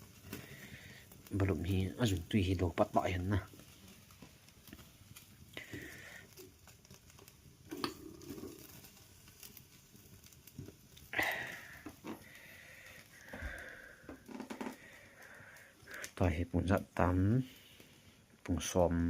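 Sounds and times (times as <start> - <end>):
mouth and handling noises: 10.4 - 16.2.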